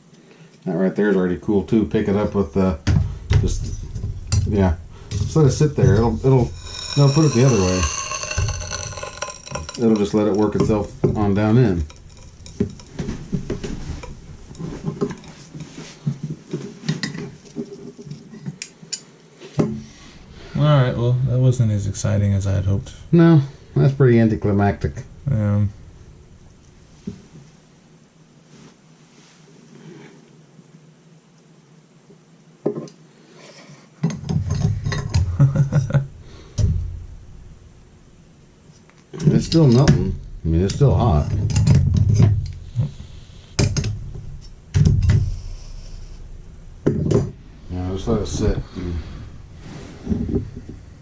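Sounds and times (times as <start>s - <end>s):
metal knocking: 3.3s - 15.3s.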